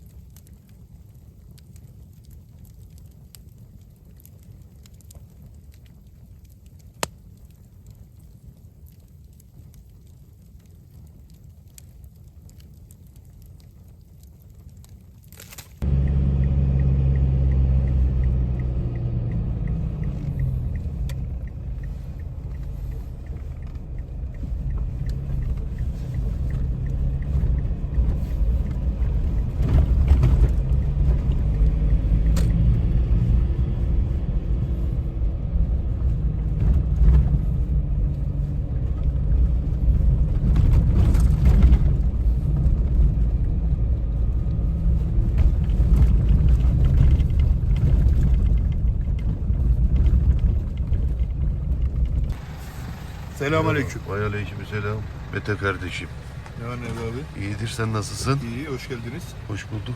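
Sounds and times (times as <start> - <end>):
vehicle engine rumbling: 15.6 - 59.9.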